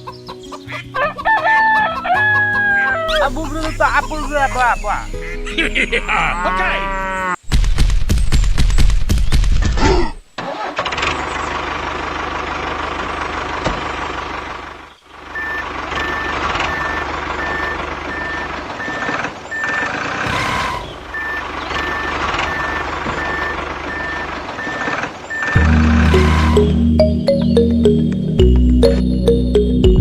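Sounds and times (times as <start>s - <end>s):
reversing alarm beeping: 3.1s - 6.5s, 15.4s - 19.9s, 21.1s - 29.0s
engine running: 10.6s - 20.2s, 20.9s - 30.0s.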